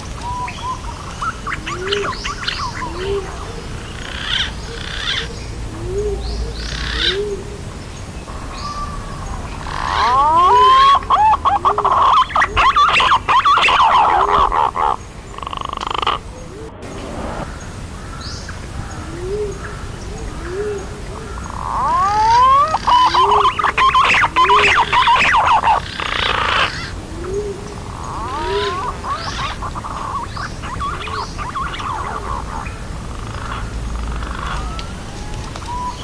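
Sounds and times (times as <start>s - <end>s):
pigeon whistled calls: 9.8s - 14.6s, 21.7s - 26.9s, 34.3s - 36.0s.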